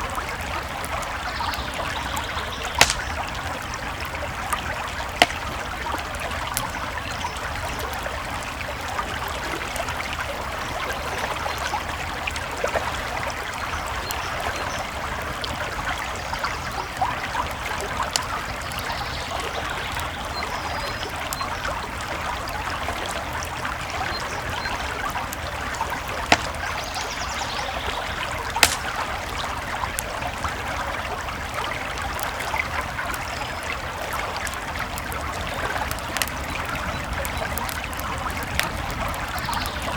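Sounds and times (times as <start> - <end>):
campfire crackling pops: 0.0 - 10.3, 22.1 - 39.9
creek flowing: 0.0 - 39.9.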